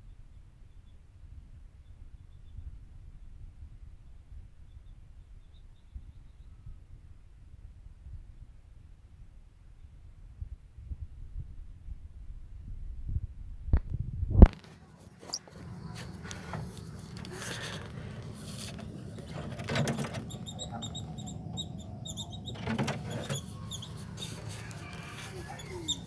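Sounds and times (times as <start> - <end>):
handling knocks and rattles: 14.6 - 26.0
small birds chirping: 14.7 - 26.0.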